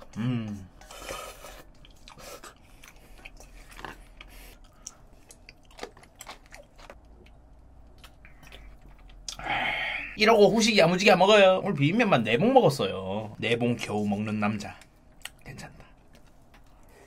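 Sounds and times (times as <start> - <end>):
person chewing noodles: 0.0 - 9.6.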